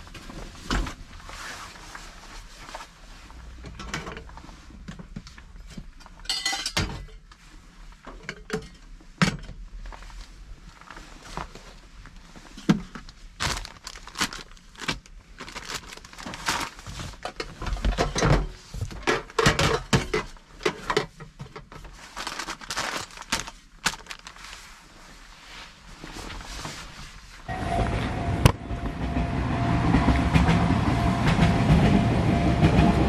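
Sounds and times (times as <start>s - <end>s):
plastic packaging rustling: 9.8s - 27.5s.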